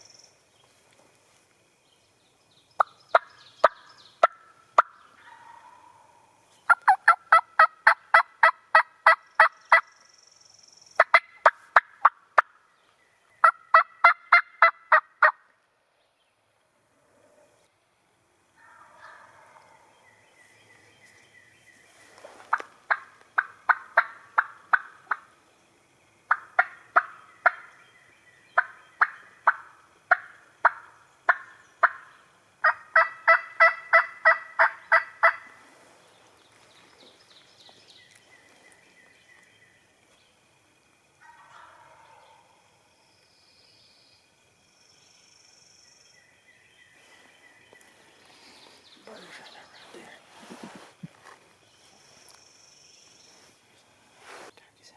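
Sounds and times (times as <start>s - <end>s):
turkey yelps: 4.8s - 6.2s, 18.6s - 19.7s, 41.2s - 42.3s.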